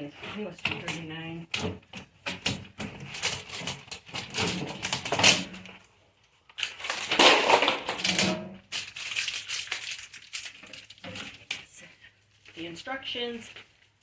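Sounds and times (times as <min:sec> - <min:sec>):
packaging crinkling and crackling: 0:02.6 - 0:12.6, 0:13.3 - 0:14.0.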